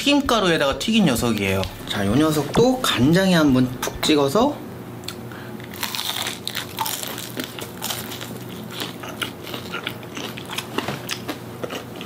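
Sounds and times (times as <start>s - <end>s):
crisp crunches of chewing: 5.1s - 12.0s.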